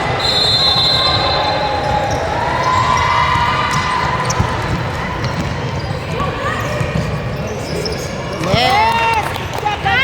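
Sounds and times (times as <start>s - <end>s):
basketball bouncing on court: 1.8s - 7.2s, 8.4s - 9.4s.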